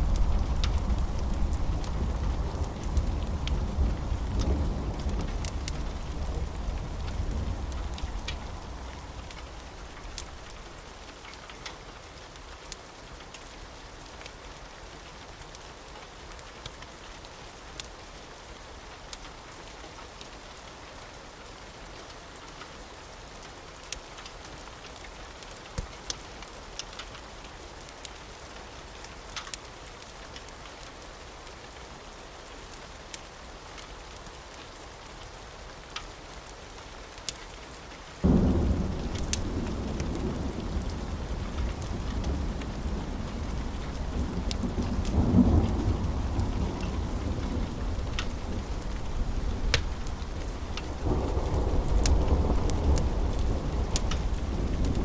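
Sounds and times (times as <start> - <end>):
low thunder rumble: 0.0 - 10.7, 38.2 - 55.0
rain falling: 0.0 - 55.0
sharp pops and crackles: 38.3 - 55.0.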